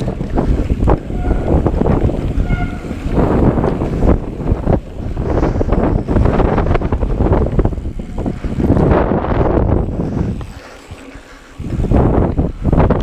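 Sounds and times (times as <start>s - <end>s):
bike rattling over rough trail: 0.0s - 13.0s
wind buffeting microphone: 0.0s - 13.0s.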